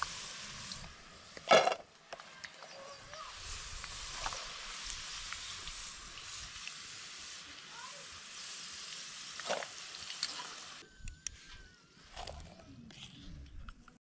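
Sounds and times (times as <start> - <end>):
fries sizzling in hot oil: 0.0 - 10.8.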